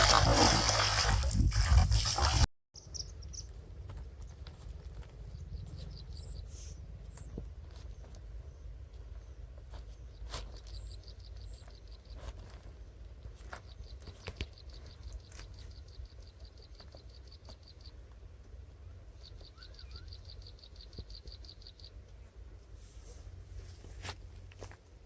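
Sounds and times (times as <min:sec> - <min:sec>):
steady low rumble: 0:03.0 - 0:10.3.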